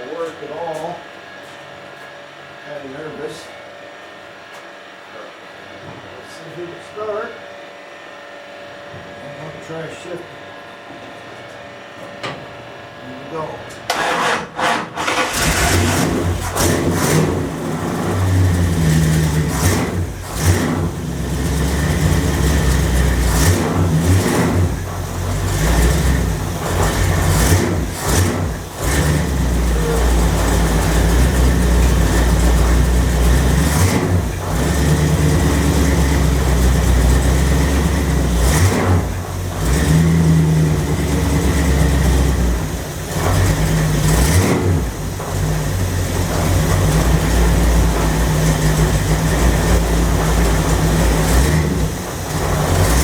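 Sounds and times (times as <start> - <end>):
automatic transmission shifting gears: 13.8 - 53.0
car engine revving: 13.9 - 53.0.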